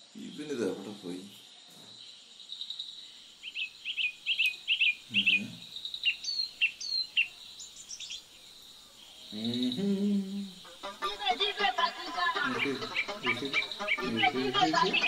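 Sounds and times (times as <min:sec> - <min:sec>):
high insect whine: 0:00.0 - 0:15.0
small birds chirping: 0:00.0 - 0:15.0
person's voice: 0:11.1 - 0:15.0.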